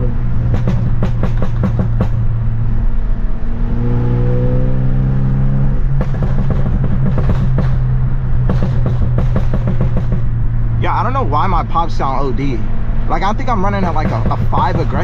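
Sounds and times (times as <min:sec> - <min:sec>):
car engine droning: 0:00.0 - 0:15.0
crackling exhaust pops: 0:06.0 - 0:10.4
person talking: 0:10.8 - 0:15.0.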